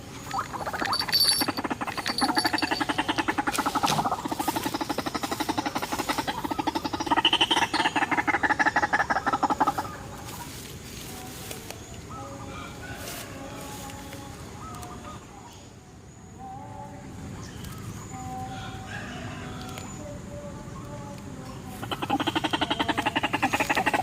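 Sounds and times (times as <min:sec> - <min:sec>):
waterhen call: 0:00.0 - 0:10.6, 0:21.8 - 0:24.0.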